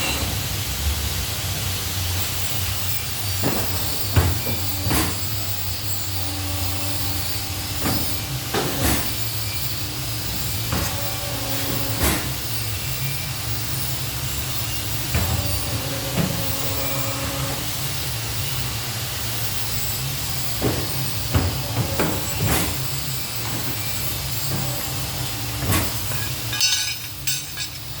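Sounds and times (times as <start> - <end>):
machine low hum with hiss: 0.0 - 28.0
sharp metal clanks and knocks: 20.6 - 28.0.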